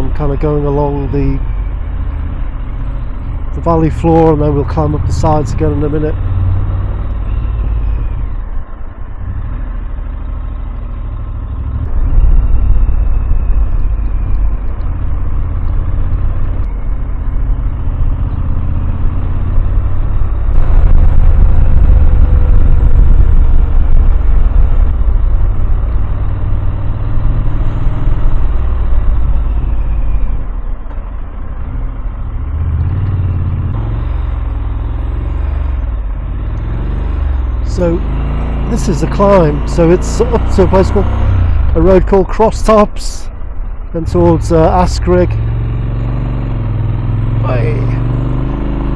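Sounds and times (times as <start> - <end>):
motorcycle engine: 0.0 - 48.9
wind rushing over microphone: 11.8 - 34.0.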